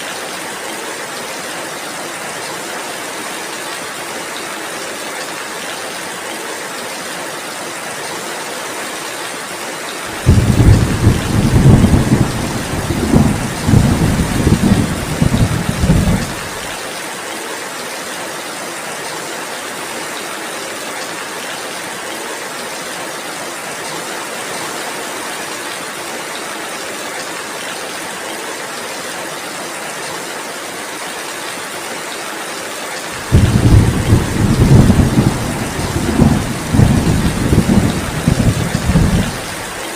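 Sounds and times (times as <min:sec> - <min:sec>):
heavy rain hissing: 0:10.0 - 0:17.1, 0:33.0 - 0:39.9
thunder rumbling: 0:10.1 - 0:16.7, 0:33.2 - 0:39.8.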